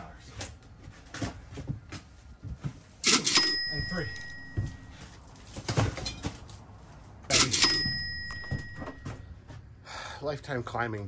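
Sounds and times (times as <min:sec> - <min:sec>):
cardboard boxes rustling: 0:00.3 - 0:03.0, 0:04.1 - 0:07.2
cash register ka-ching: 0:03.0 - 0:04.6, 0:07.3 - 0:09.0.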